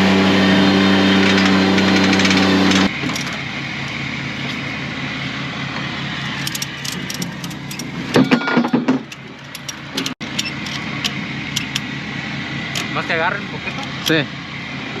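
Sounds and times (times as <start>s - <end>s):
engine idling: 0.0s - 15.0s
metal squeak and clatter: 1.1s - 3.4s, 6.3s - 11.8s.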